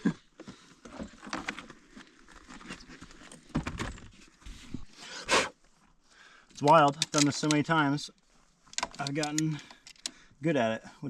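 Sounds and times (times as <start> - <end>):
hand tools clicking and knocking: 6.6 - 7.6, 8.7 - 10.2.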